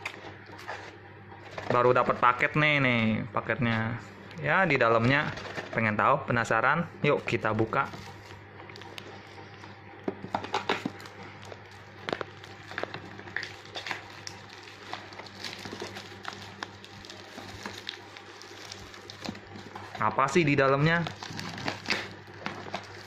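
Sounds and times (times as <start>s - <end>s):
wrapping crinkling and rustling: 7.0s - 23.0s.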